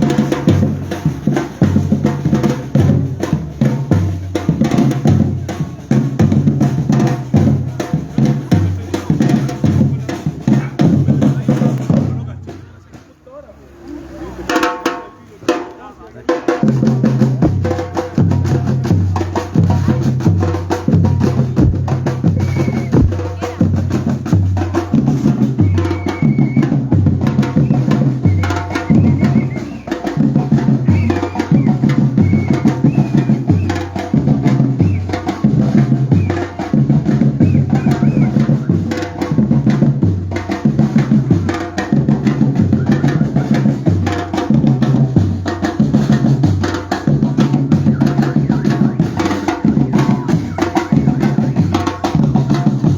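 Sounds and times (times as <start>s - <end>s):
snare and hand percussion: 0.0s - 13.2s, 13.9s - 52.9s
deep bass drums: 16.7s - 36.2s.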